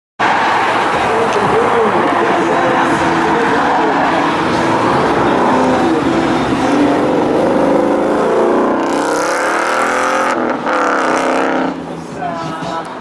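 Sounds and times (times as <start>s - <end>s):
car engine accelerating: 0.2s - 13.0s.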